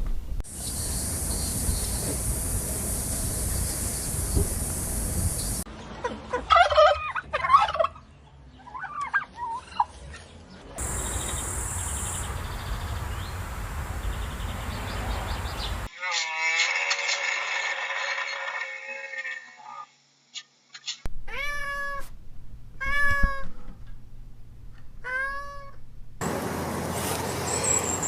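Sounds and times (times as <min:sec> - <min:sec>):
outdoor background noise: 0:00.0 - 0:28.0
turkey gobbling: 0:06.3 - 0:08.1, 0:08.7 - 0:09.9.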